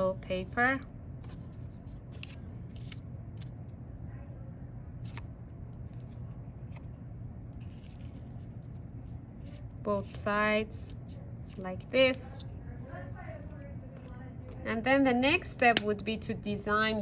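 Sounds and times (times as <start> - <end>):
low background hum: 0.0 - 17.0
paper rustling: 1.2 - 3.6, 5.0 - 10.2.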